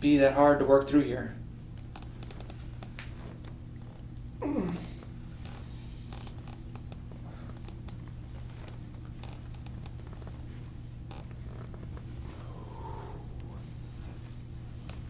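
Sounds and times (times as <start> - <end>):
person groaning: 4.4 - 5.0, 12.4 - 13.4.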